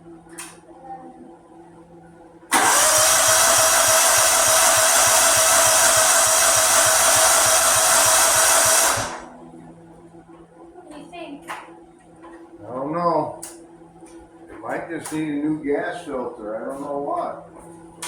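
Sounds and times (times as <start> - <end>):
lawnmower starter cranking: 2.5 - 9.2.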